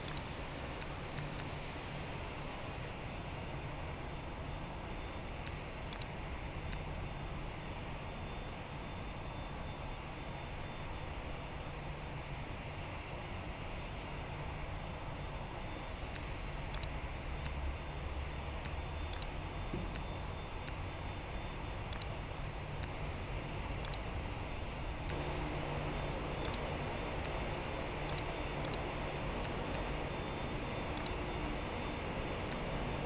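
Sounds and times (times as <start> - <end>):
jet engines rumbling: 24.4 - 33.0.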